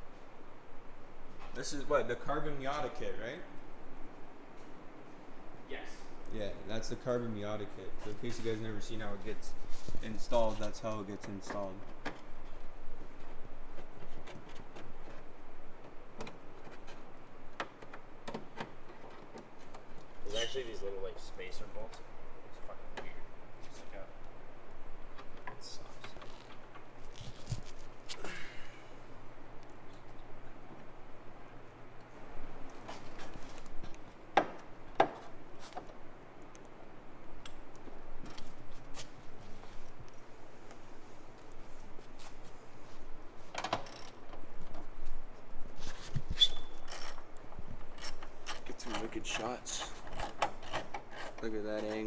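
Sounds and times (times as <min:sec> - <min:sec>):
hand tools clicking and tapping: 0:47.8 - 0:52.0.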